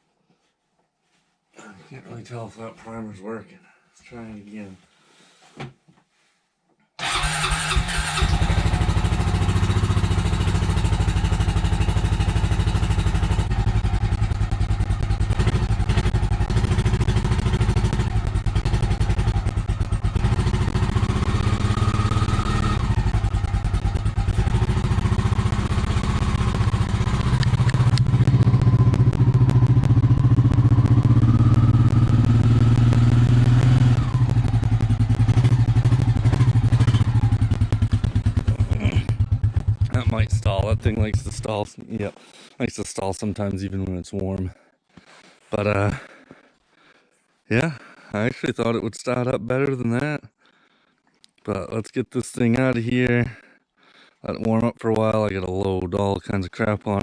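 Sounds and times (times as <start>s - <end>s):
engine idling unevenly: 8.8s - 41.6s.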